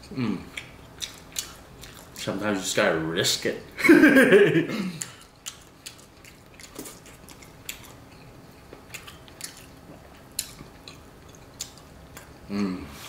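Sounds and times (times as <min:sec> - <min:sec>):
person chewing with mouth clicks: 0:00.0 - 0:02.4, 0:04.9 - 0:12.8.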